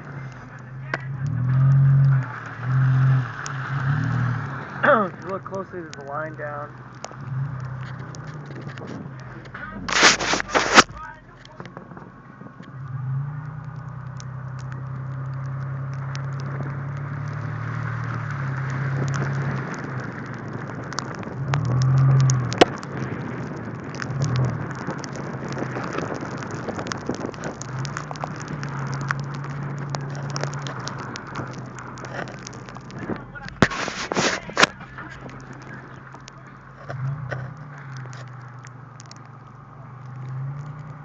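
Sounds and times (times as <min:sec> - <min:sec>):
car engine hum: 0:00.0 - 0:41.0
sharp ticks: 0:05.1 - 0:09.5
tyre hiss on wet road: 0:33.6 - 0:36.0.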